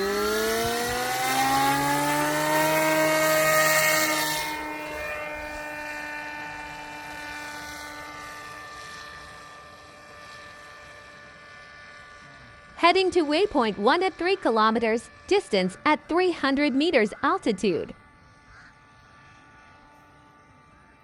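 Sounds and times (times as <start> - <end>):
drone motor whining: 0.0 - 9.8.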